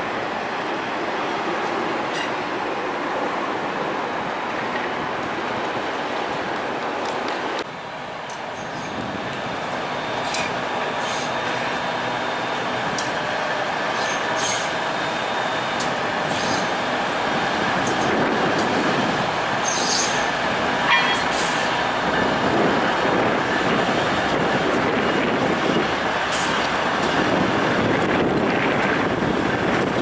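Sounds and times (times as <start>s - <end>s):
train rolling past: 0.0s - 30.0s
high wheel squeals: 13.8s - 14.8s, 16.2s - 16.8s, 19.6s - 21.8s.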